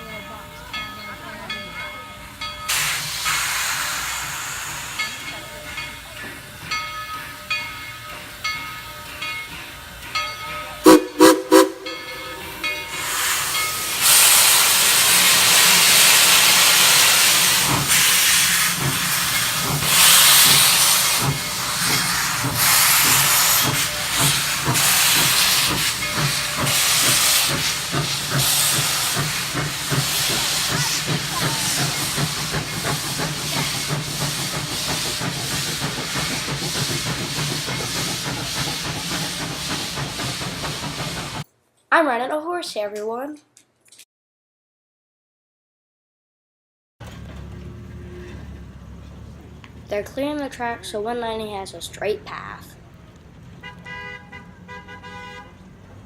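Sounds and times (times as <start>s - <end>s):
steam locomotive venting steam: 1.4s - 41.5s.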